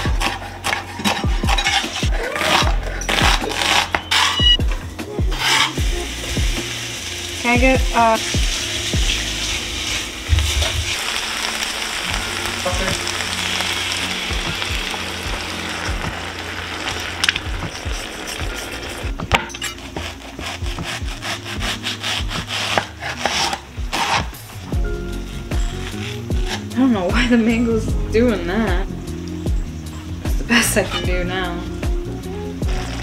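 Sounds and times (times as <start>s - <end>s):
utensil scraping a pan: 0.0s - 4.6s, 5.3s - 5.9s, 16.8s - 24.4s
vegetables sizzling in a pan: 5.3s - 19.1s, 32.6s - 33.0s.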